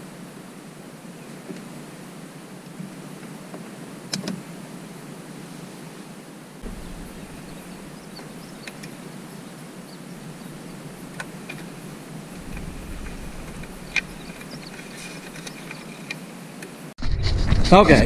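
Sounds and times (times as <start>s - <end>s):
background hiss: 0.0s - 17.0s
low rumble: 6.6s - 8.6s, 10.3s - 15.3s.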